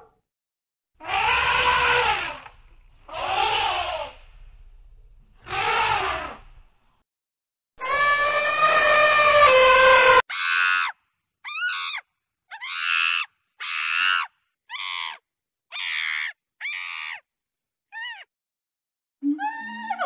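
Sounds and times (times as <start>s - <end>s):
elephant trumpeting: 1.0s - 4.2s, 5.4s - 6.5s, 7.8s - 10.2s
monkey shrieks: 3.1s - 4.1s, 5.5s - 6.4s, 7.8s - 17.3s, 17.9s - 18.3s.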